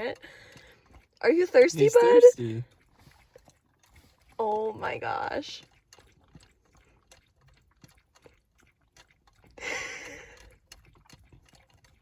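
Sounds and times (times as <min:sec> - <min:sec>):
dog lapping water: 0:00.0 - 0:12.0.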